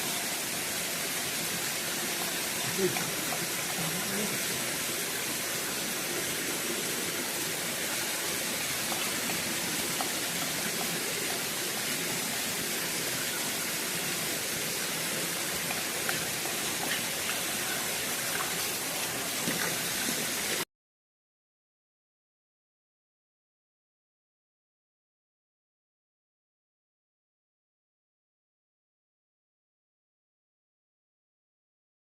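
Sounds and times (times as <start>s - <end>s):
stream water rushing: 0.0s - 20.6s.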